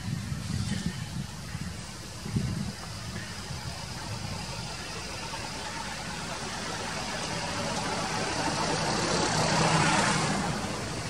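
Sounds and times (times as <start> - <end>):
vehicle engine passing: 4.1 - 11.0.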